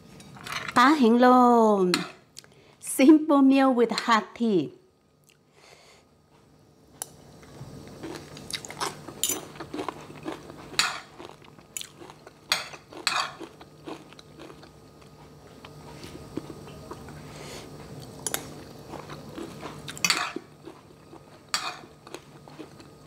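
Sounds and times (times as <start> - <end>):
crunchy chewing: 7.4 - 17.2, 17.8 - 23.0.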